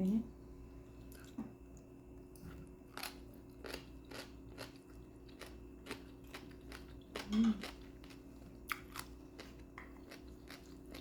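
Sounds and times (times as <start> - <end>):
food crunching while chewed: 2.2 - 11.0.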